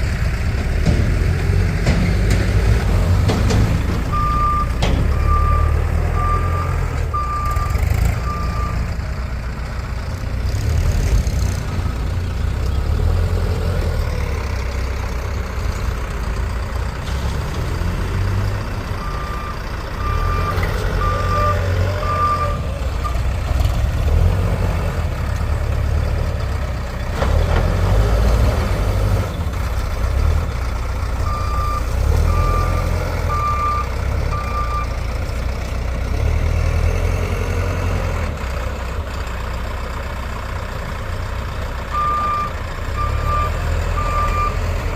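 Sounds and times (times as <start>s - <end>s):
diesel engine rumble: 0.0s - 44.9s
reversing alarm beeps: 4.1s - 8.9s, 19.0s - 23.2s, 31.2s - 34.9s, 42.0s - 44.7s.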